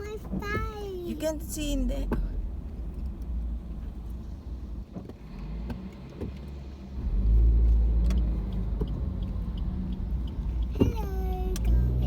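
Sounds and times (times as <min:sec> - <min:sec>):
engine and road rumble: 0:00.0 - 0:12.0
faint clicks: 0:08.0 - 0:11.8.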